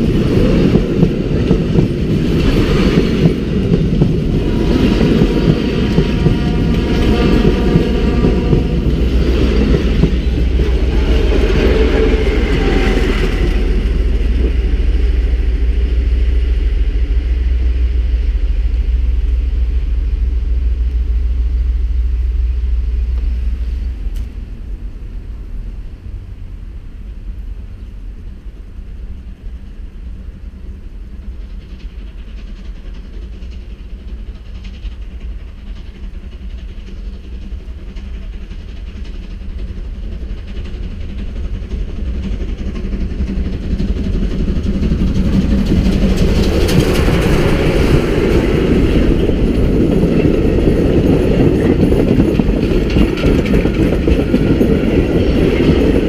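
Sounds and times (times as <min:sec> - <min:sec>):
clickety-clack of coaches: 0:00.0 - 0:14.7, 0:30.9 - 0:56.0
train wheels rolling on rail: 0:00.0 - 0:56.0.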